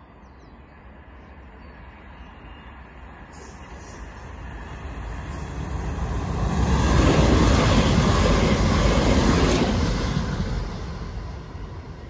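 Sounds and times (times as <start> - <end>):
train wheels rumbling on rails: 3.3 - 12.0.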